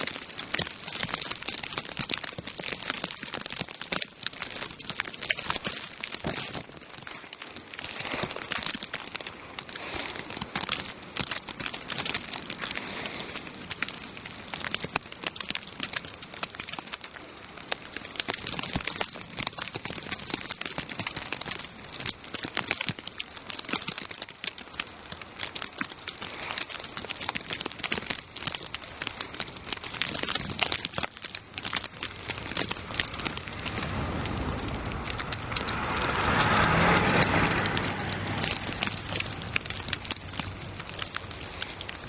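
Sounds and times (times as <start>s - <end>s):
icy snow pattering on surfaces: 0.0s - 42.0s
rushing noise: 32.3s - 41.6s.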